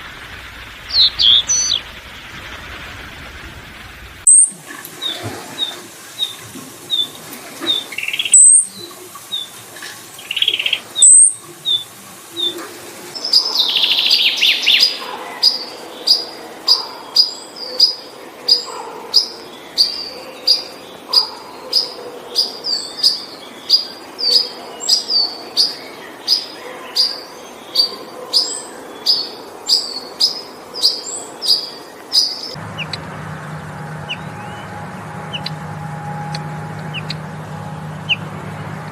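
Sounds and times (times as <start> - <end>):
sharp loud bird calls: 0.6 - 2.0, 4.2 - 12.6, 13.2 - 33.0, 33.6 - 35.6, 36.2 - 37.2
loud repeated bird chirp: 0.7 - 2.0, 4.2 - 7.1, 7.7 - 8.8, 10.2 - 11.8, 13.2 - 33.0, 34.0 - 35.6, 36.3 - 37.2
small high bird chirps: 0.9 - 1.8, 7.7 - 9.5, 10.2 - 11.8.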